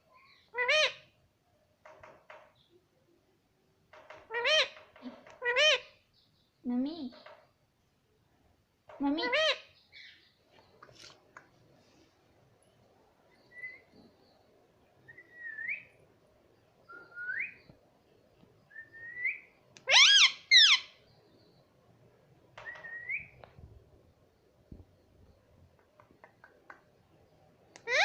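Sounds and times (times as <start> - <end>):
faint clicks: 10.5 - 11.7, 22.6 - 23.6, 25.3 - 27.9
parrot harsh calls: 19.8 - 20.9.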